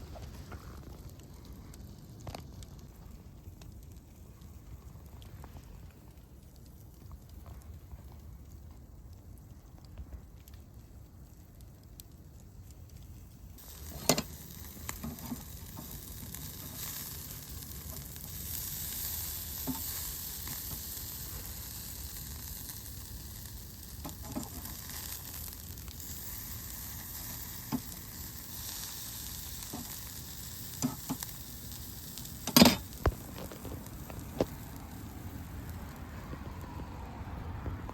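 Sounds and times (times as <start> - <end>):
food sizzling in pan: 13.6 - 35.9.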